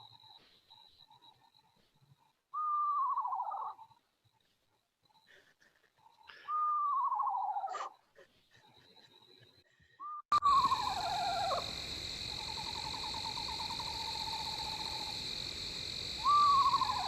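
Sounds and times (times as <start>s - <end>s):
owl trill: 0.0s - 4.0s, 6.0s - 9.4s, 10.0s - 15.2s, 16.0s - 17.0s
owl whinny call: 2.6s - 3.8s, 10.1s - 11.8s, 16.2s - 17.0s.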